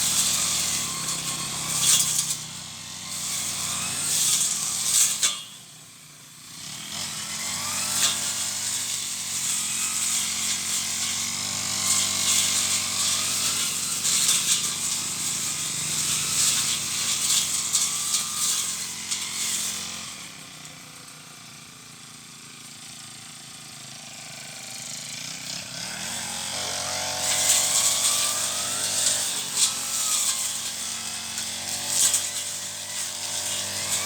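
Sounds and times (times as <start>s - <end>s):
cutting head hissing through weeds: 0.0s - 5.5s, 7.8s - 20.9s, 24.2s - 34.0s
brush cutter engine revving: 0.0s - 34.0s.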